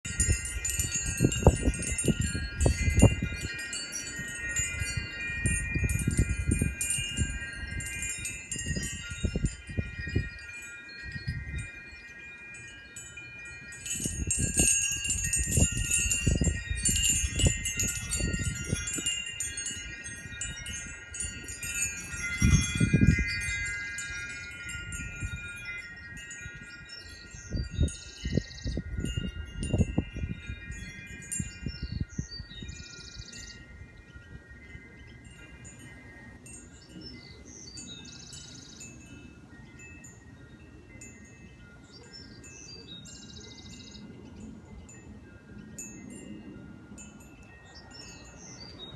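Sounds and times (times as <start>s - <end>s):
wind buffeting microphone: 0.0s - 48.9s
wind chimes ringing: 0.0s - 48.9s.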